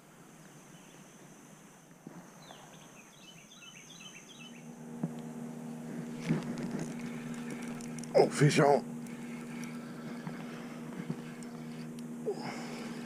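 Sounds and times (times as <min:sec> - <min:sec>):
low hum with overtones: 0:00.0 - 0:13.0
bird chirping: 0:02.3 - 0:04.7
high thin drone: 0:04.5 - 0:13.0.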